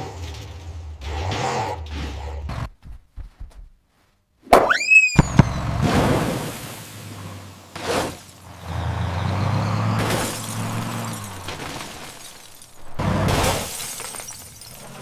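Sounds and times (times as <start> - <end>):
crashing and shattering: 9.8 - 15.0.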